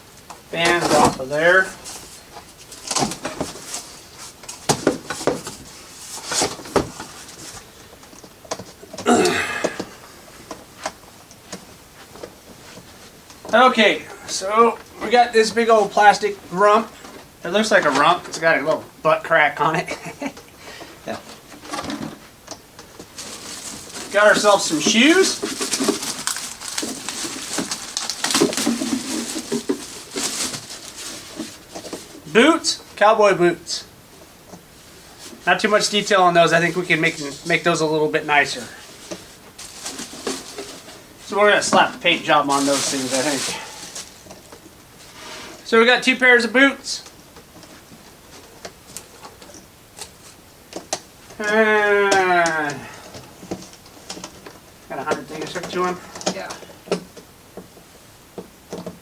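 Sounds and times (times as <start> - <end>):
packaging rustling: 22.8 - 32.3, 38.4 - 45.2.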